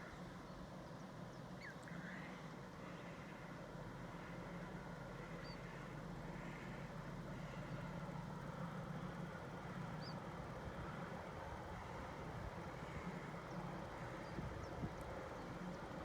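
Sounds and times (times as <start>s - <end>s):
faint low engine hum: 0.0s - 16.0s.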